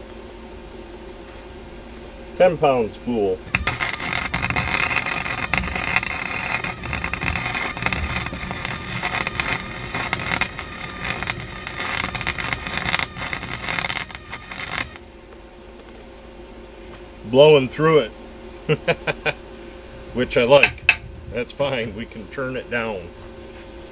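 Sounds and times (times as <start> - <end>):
welding arc crackling: 2.4 - 15.9, 20.2 - 23.1.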